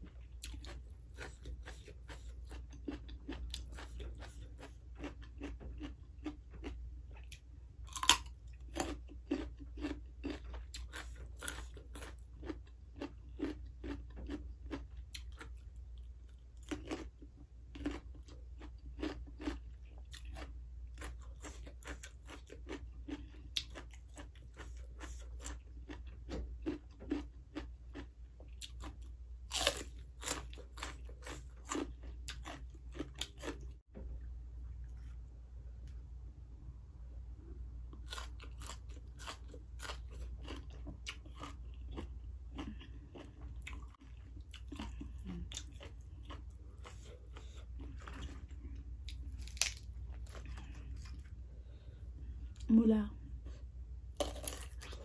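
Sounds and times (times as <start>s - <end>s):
crunchy chewing: 0.0s - 33.8s, 37.8s - 52.7s, 53.5s - 55.0s
crunching bites of raw vegetables: 44.5s - 51.3s.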